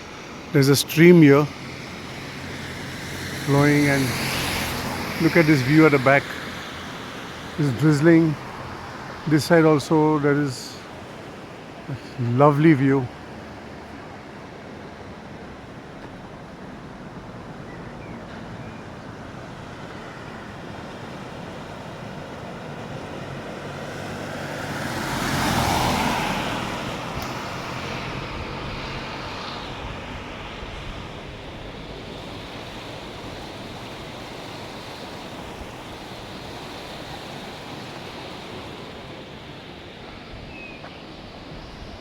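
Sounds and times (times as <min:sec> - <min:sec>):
mountain stream rushing: 0:00.0 - 0:42.0
vehicle passing by: 0:00.6 - 0:09.8, 0:20.8 - 0:40.1.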